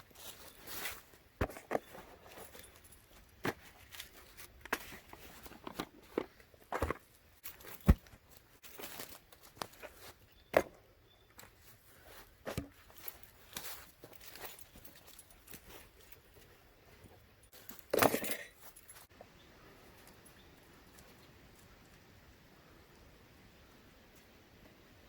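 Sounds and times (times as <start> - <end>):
dry leaves and twigs crunching: 0.0 - 10.5, 11.2 - 19.2.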